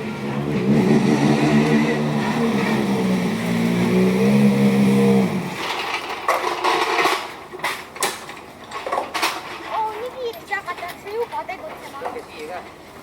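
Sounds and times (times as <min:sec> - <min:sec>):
rally car engine at high revs: 0:00.0 - 0:05.8.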